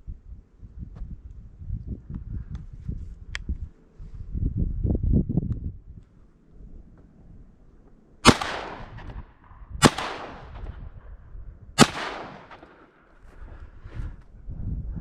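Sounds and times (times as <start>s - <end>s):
shotgun shots echoing: 8.2s - 10.8s, 11.8s - 13.1s.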